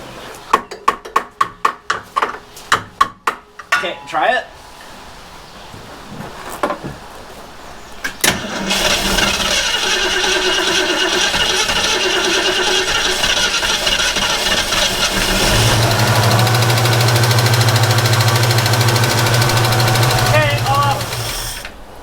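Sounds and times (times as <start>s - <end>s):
car engine starting and running: 8.2s - 21.8s.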